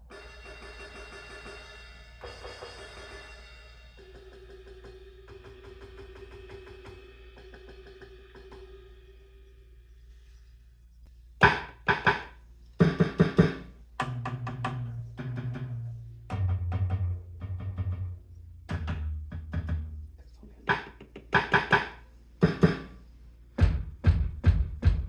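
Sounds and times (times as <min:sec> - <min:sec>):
ringing tone: 0:00.0 - 0:05.6
cymbal wash: 0:00.0 - 0:10.6.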